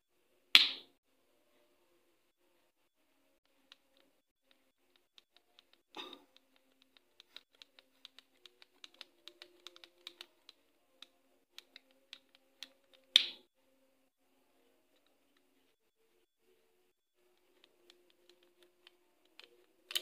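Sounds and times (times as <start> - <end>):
small hard parts clicking: 3.5 - 13.4, 17.2 - 20.0.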